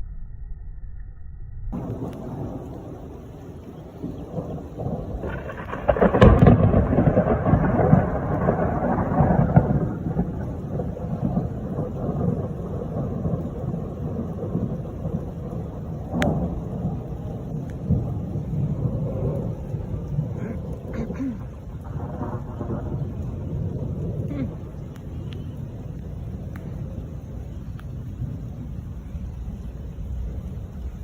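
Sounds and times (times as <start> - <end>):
thunder rumbling: 0.0 - 31.0
steady rain: 1.8 - 31.0.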